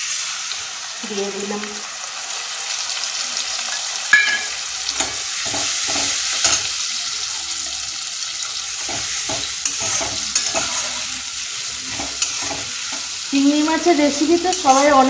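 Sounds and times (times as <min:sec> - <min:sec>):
onions sizzling in hot oil: 0:00.0 - 0:15.0
metal spatula scraping pan: 0:08.8 - 0:13.2, 0:14.2 - 0:15.0.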